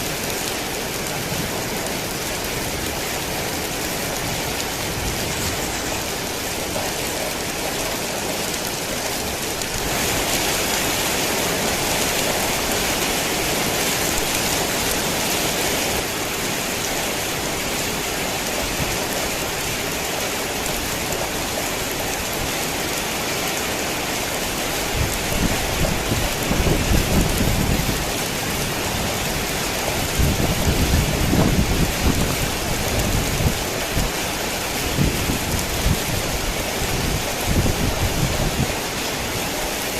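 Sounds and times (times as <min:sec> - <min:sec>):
heavy rain falling: 0:00.0 - 0:39.9
thunder rumbling: 0:24.8 - 0:38.9.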